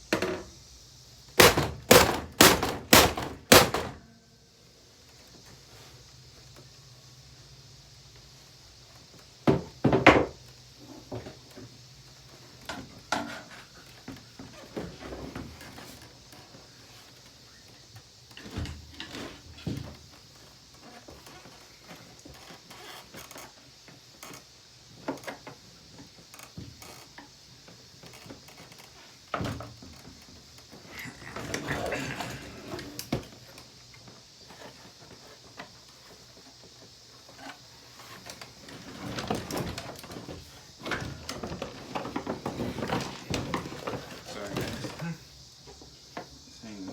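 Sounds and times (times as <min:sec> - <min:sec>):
plastic and metal parts clattering: 0:38.2 - 0:45.0.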